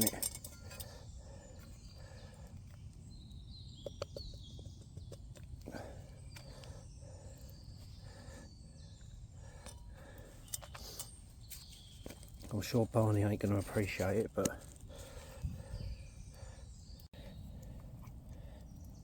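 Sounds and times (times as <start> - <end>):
faint bird chirps: 0.0 - 12.5.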